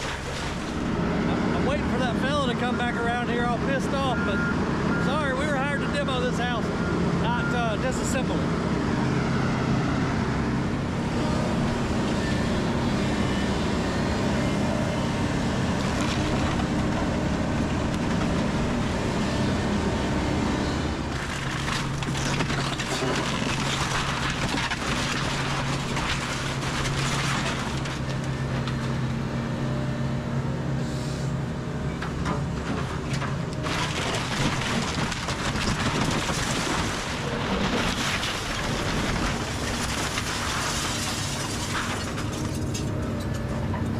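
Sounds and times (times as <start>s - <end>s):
wooden structure crashing and cracking: 0.0s - 0.9s, 15.7s - 18.8s, 21.1s - 28.9s, 32.2s - 43.0s
excavator diesel engine running: 0.0s - 43.9s.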